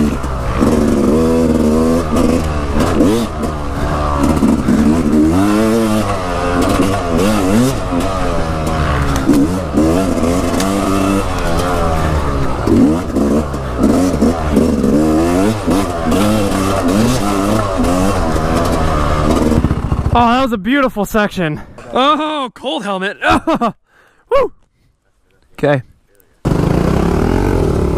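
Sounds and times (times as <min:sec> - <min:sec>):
dirt bike engine revving: 0:00.0 - 0:20.5, 0:26.4 - 0:27.9.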